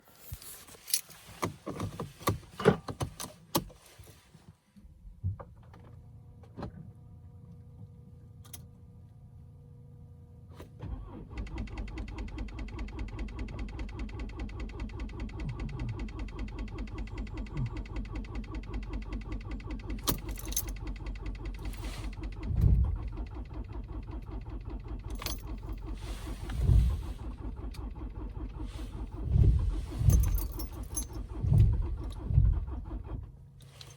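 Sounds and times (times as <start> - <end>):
starter motor cranking: 21.5 - 33.3
engine thumps: 21.6 - 23.5, 25.1 - 27.7, 28.6 - 33.3.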